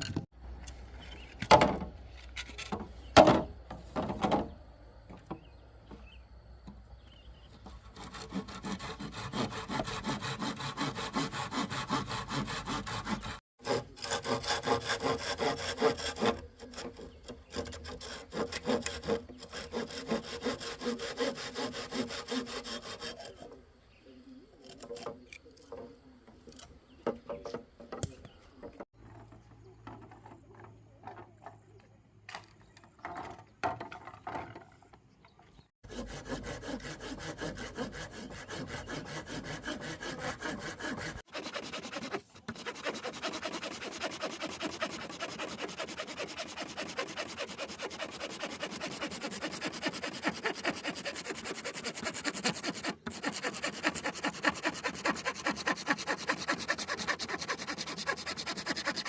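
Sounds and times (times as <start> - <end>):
hand saw cutting bamboo: 7.8 - 23.6, 35.8 - 59.0.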